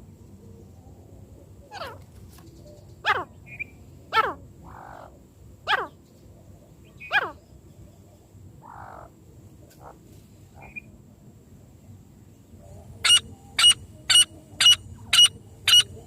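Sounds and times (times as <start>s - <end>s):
francolin calling: 2.9s - 6.0s, 6.8s - 7.6s, 8.6s - 9.2s, 10.6s - 11.0s, 12.8s - 16.0s.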